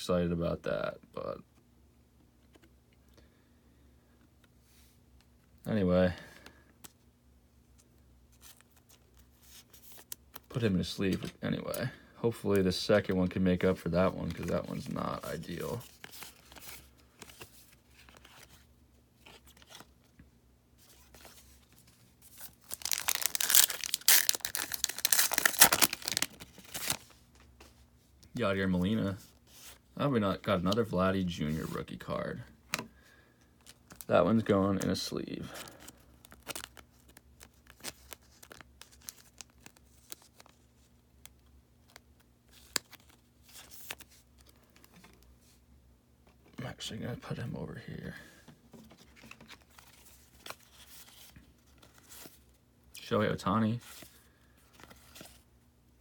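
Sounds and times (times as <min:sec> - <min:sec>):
card sliding into plastic sleeve: 0:20.9 - 0:27.2
wrapper tearing and crinkling: 0:22.3 - 0:27.1, 0:35.6 - 0:40.6.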